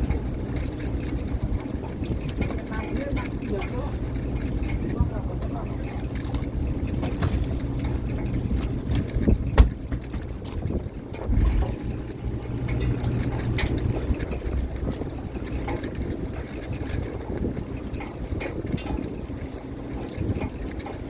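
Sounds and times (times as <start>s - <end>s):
boat engine humming: 0.0s - 21.0s
dull thud: 9.5s - 10.0s.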